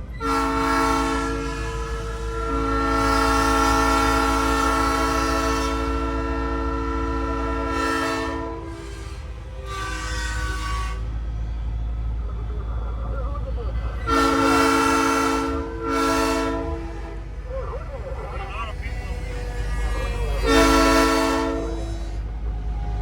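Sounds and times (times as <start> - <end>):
truck rumble: 0.0 - 23.0
train horn chord: 0.2 - 11.2, 14.0 - 17.3, 19.2 - 22.3.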